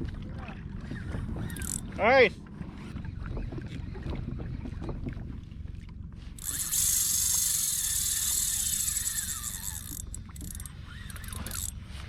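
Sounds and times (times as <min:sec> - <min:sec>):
fishing reel drag buzzing: 0:01.4 - 0:01.8, 0:06.4 - 0:12.0.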